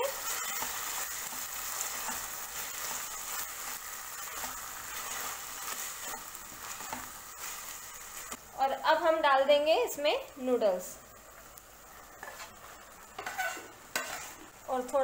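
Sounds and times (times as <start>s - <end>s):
vegetables sizzling in a wok: 0.0s - 15.0s.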